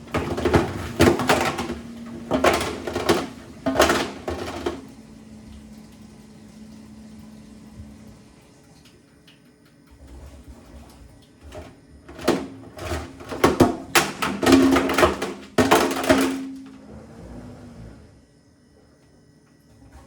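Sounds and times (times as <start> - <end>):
calculator knocking in washing machine: 0.0 - 8.0, 11.4 - 16.9
washing machine motor hum: 0.0 - 20.0.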